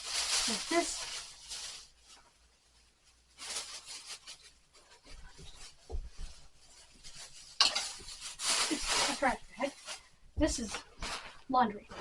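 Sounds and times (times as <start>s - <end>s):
rubbing and rustling of objects: 0.0s - 12.0s.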